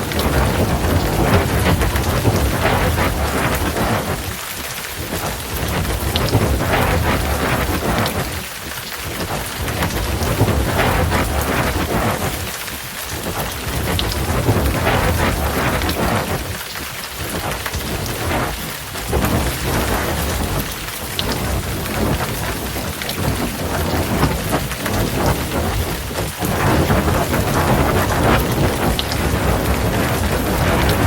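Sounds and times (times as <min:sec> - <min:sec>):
heavy rain pouring: 0:00.0 - 0:31.0
low rolling thunder: 0:00.0 - 0:31.0.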